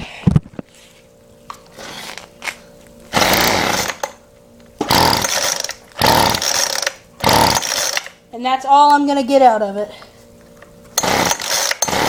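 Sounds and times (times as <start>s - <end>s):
recoil starter pulls: 4.8s - 8.1s, 10.9s - 12.0s.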